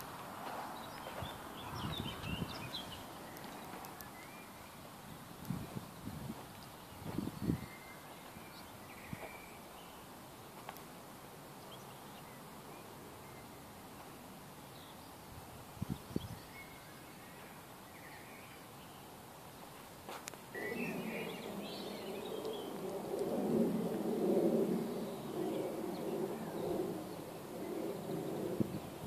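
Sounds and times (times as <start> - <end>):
outdoor background noise: 0.0 - 29.0
birds chirping: 0.4 - 4.9, 20.5 - 29.0.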